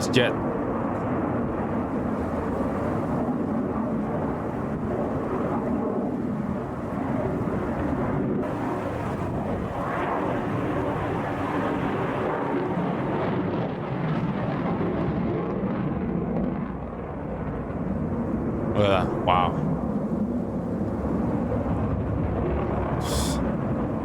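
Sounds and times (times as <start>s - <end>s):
jet engine rushing: 18.8s - 24.0s.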